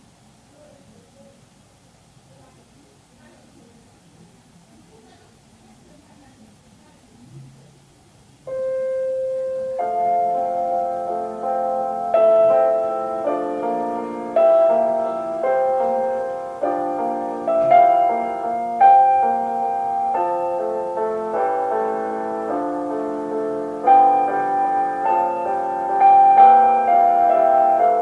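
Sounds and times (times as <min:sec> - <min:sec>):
slow classical piano music: 0:08.4 - 0:28.0.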